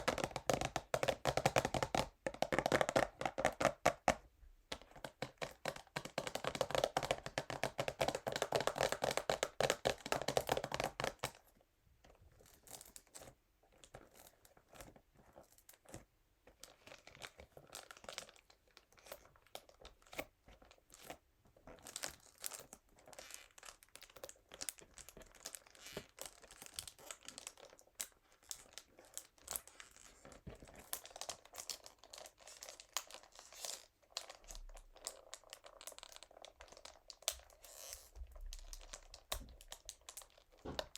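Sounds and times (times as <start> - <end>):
plastic wrap crinkling: 21.7 - 40.9.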